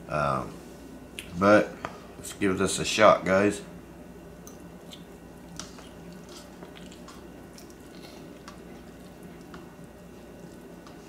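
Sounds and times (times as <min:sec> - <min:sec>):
low steady hum: 0:00.0 - 0:11.0
man chewing noodles: 0:04.5 - 0:11.0.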